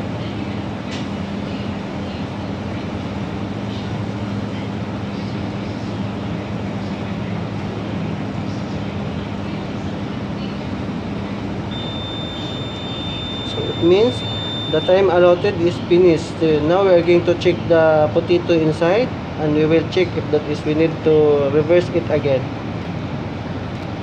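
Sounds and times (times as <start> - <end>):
microwave oven humming: 0.0 - 24.0
long high-pitched beep: 11.7 - 15.6.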